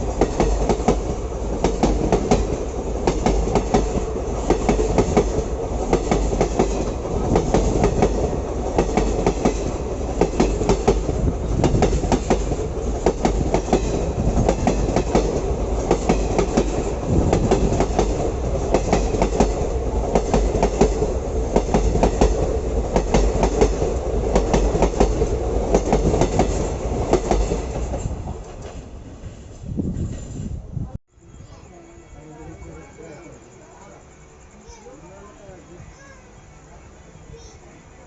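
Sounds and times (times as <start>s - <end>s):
train wheels clattering over rail joints: 0.0s - 30.4s
train rumble: 0.0s - 38.0s.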